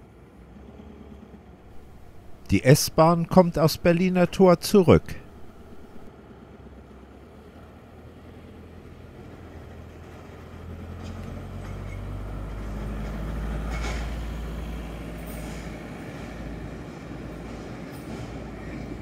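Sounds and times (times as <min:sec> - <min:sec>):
electric train rumbling: 0:00.0 - 0:19.0
wheels clacking over rail joints: 0:10.0 - 0:19.0.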